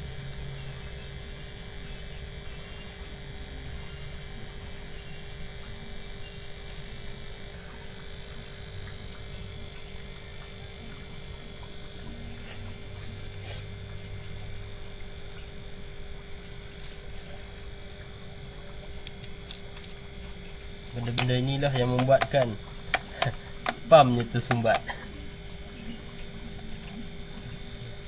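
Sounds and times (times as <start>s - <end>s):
electrical hum: 0.0s - 28.0s
faint clicks and taps: 21.0s - 24.9s.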